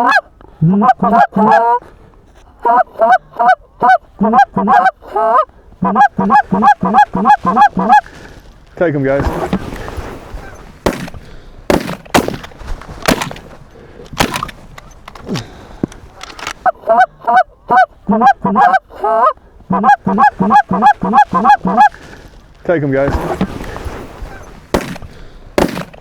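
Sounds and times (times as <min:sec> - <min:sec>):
geese honking: 0:00.0 - 0:01.9, 0:02.6 - 0:15.2, 0:16.0 - 0:26.0
shotgun shots: 0:09.2 - 0:13.6, 0:14.2 - 0:14.7, 0:23.0 - 0:26.0.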